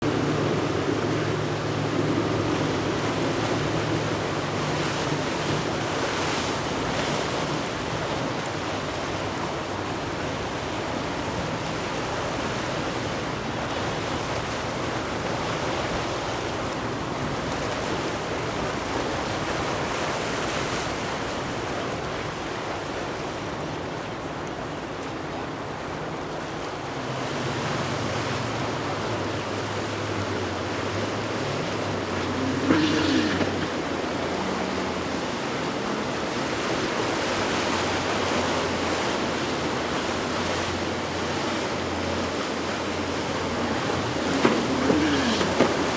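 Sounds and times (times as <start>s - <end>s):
boat engines droning: 0.0s - 45.9s
surf: 0.0s - 45.9s
wind: 0.0s - 45.9s.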